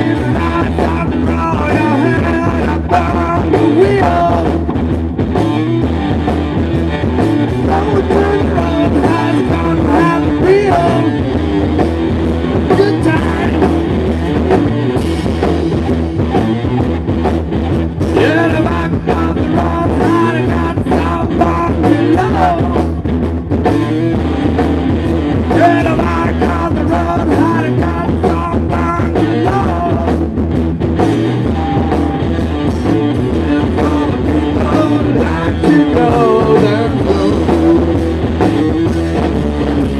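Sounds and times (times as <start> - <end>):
person singing: 0.0 - 4.7, 7.5 - 11.3, 12.6 - 13.9, 18.1 - 23.0, 25.4 - 30.3, 31.6 - 38.2
rock band playing: 0.0 - 39.9.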